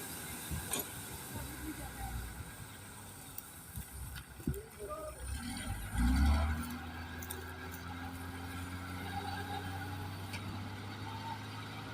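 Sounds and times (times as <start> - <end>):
harvesting machine engine revving: 5.2 - 10.4.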